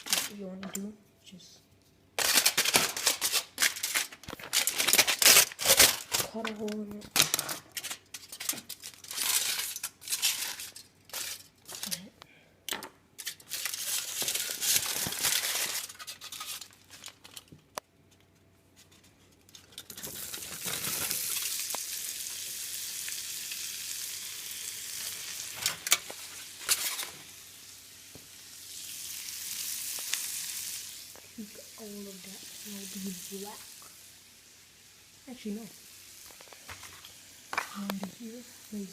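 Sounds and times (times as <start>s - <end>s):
sausage sizzling in a frying pan: 19.8s - 38.9s.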